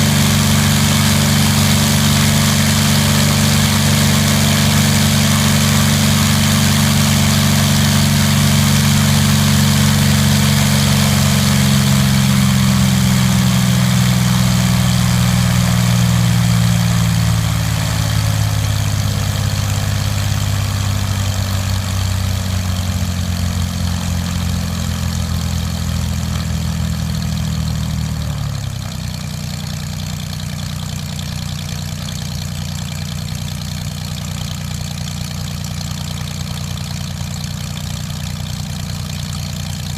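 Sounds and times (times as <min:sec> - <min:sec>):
airplane engine running: 0:00.0 - 0:28.6.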